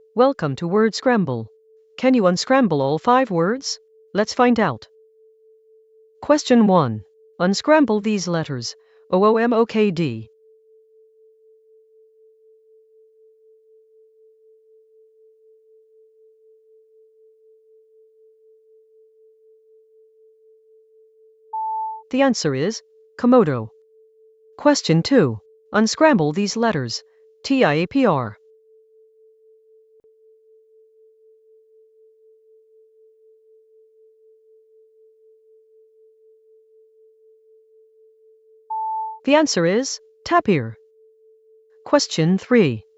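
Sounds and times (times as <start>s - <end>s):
pulsing electronic sine tone: 4.8s - 6.3s, 10.3s - 22.0s, 28.4s - 39.3s.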